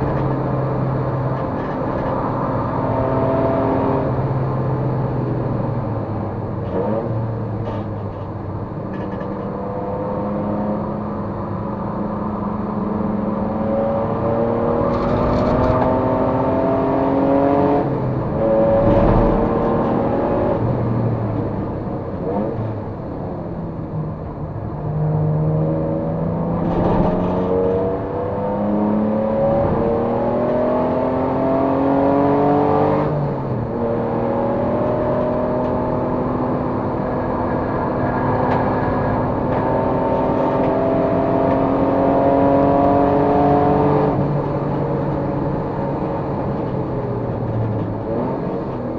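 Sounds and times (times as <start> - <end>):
race car engine revving: 13.0 - 21.1.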